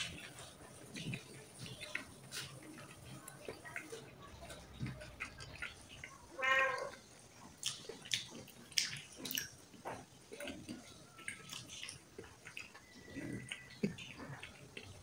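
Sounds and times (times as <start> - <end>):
cat meowing: 6.3 - 7.0.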